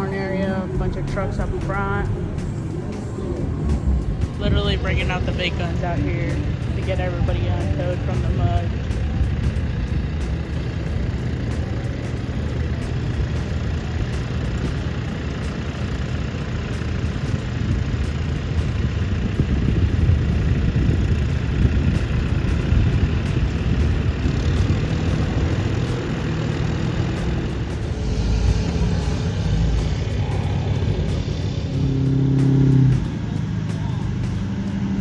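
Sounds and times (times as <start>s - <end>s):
large vehicle engine rumbling: 0.0s - 35.0s.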